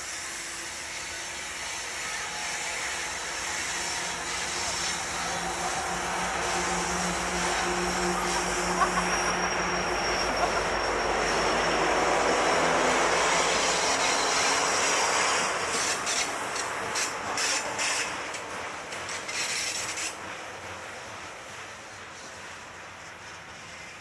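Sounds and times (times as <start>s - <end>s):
diesel locomotives humming: 0.1s - 24.0s
freight cars rumbling: 3.8s - 21.3s.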